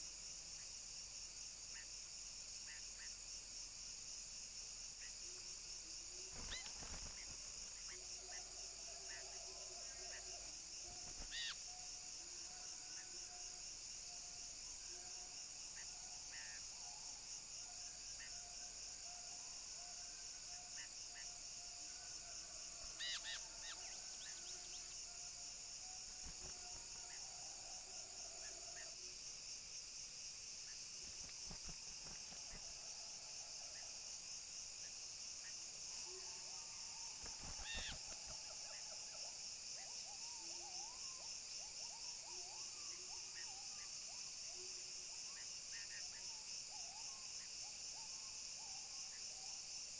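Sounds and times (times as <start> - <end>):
insects droning: 0.0 - 49.9
short bird calls: 37.5 - 38.0.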